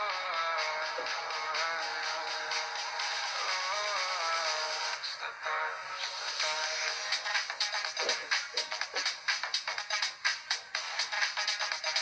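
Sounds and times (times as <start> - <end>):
pop song on radio: 0.0 - 12.0.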